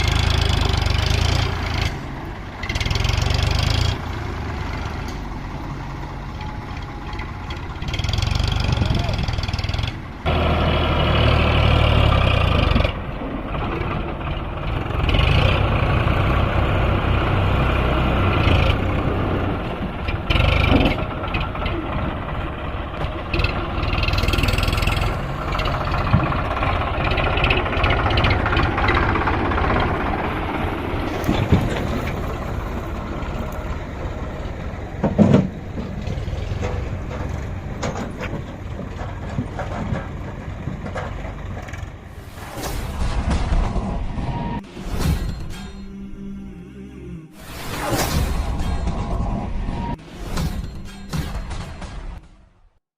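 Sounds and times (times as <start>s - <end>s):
tractor diesel engine: 0.0s - 52.6s
knocks and bangs: 47.9s - 52.6s.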